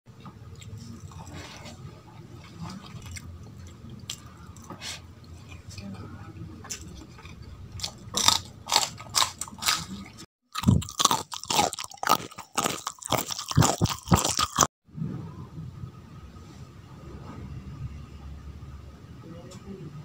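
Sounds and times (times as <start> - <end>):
crunching and chewing: 0.4 - 5.8, 6.6 - 14.7.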